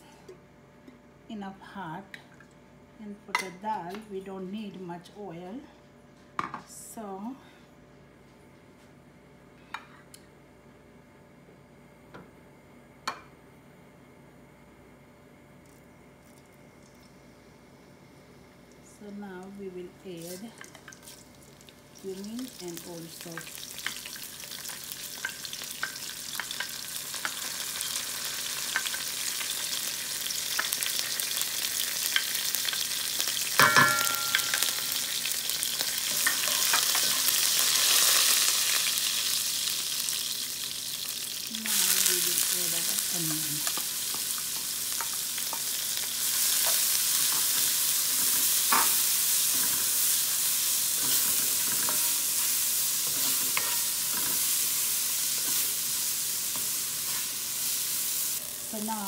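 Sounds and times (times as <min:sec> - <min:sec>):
spices sizzling in hot oil: 0:18.6 - 0:59.0
spatula stirring in pot: 0:51.0 - 0:55.8.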